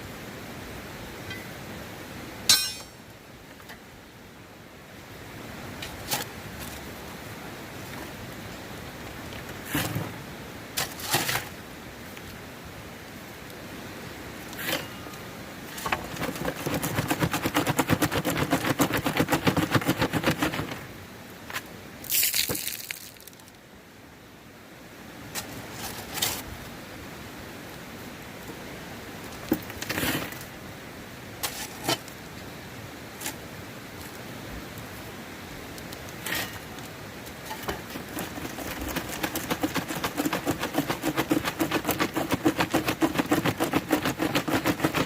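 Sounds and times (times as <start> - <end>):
gravel pouring: 5.8 - 12.1, 14.3 - 21.0, 22.0 - 23.6, 35.9 - 45.0
stones knocking and scraping: 15.8 - 20.8, 21.5 - 23.4, 37.5 - 45.0
gravel rattling: 22.0 - 23.5, 36.2 - 45.0.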